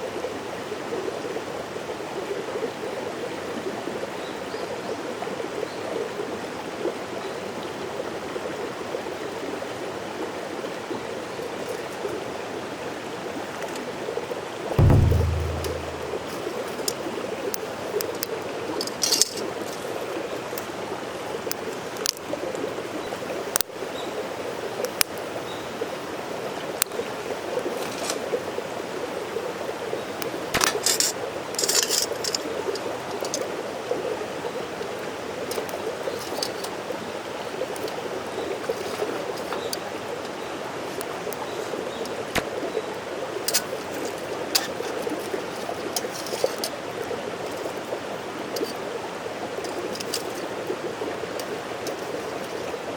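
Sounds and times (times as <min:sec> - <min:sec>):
mountain stream running: 0:18.1 - 0:52.9.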